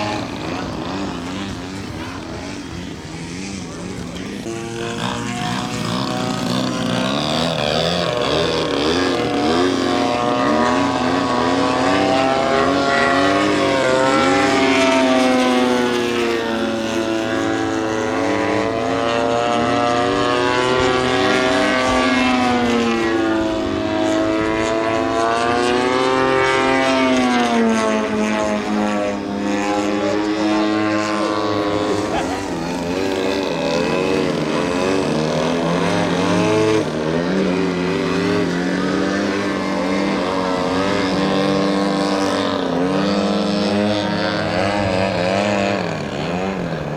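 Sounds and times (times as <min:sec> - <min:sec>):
model airplane engine and propeller: 0:00.0 - 0:46.9.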